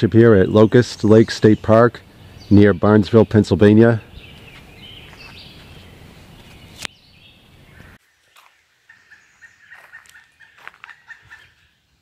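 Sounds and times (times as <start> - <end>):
faint bird calls: 4.0 - 11.9.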